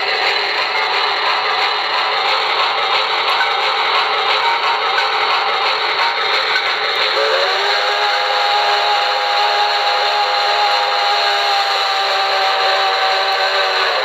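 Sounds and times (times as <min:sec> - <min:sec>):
steam hissing: 0:00.0 - 0:14.0
chime steam whistle: 0:03.3 - 0:14.0.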